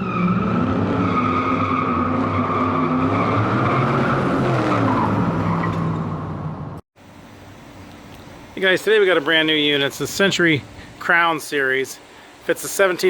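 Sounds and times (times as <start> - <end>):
car tyres squealing: 0.0 - 6.4
car engine revving: 0.0 - 6.8.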